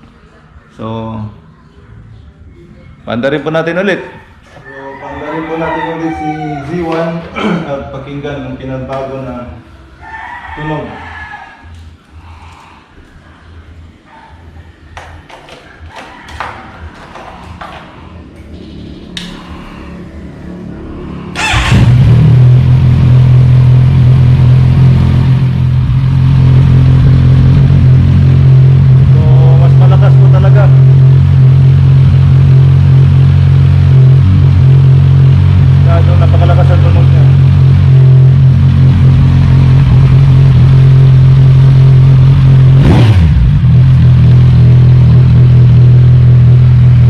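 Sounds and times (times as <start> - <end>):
unmuffled motorcycle engine idling: 20.0 - 47.0.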